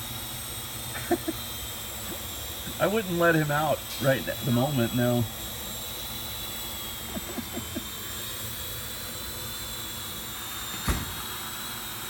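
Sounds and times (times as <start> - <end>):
drone propellers whining: 0.0 - 12.0
short thump: 10.8 - 11.2.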